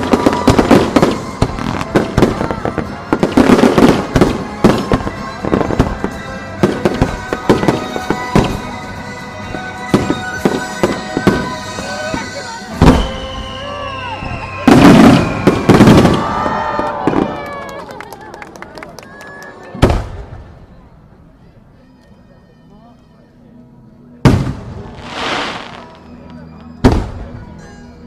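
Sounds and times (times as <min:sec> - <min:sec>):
fireworks bursting with bangs: 0:00.0 - 0:13.6, 0:14.3 - 0:17.4, 0:19.8 - 0:20.4, 0:24.2 - 0:27.5
heavy firework boom: 0:24.2 - 0:25.9, 0:26.8 - 0:27.5.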